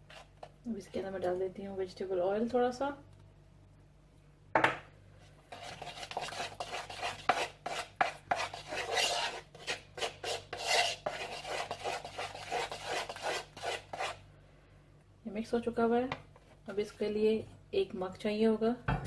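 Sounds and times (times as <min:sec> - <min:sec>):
utensil scraping a bowl: 0:05.5 - 0:14.2.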